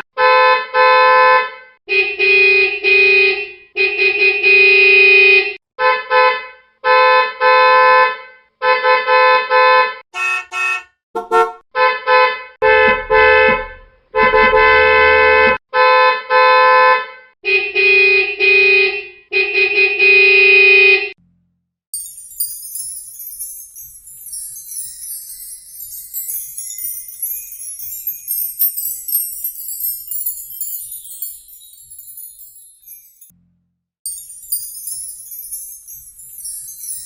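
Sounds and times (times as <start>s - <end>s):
short horn-like honks: 0.2s - 21.1s
high jingling of small bells: 22.0s - 33.3s, 34.1s - 37.0s.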